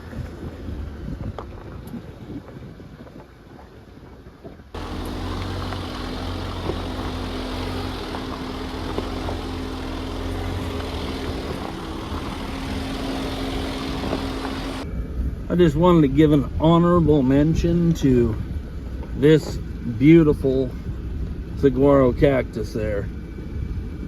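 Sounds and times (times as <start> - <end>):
tyres rumbling on dirt road: 0.0 - 24.0
car engine running: 4.8 - 14.9.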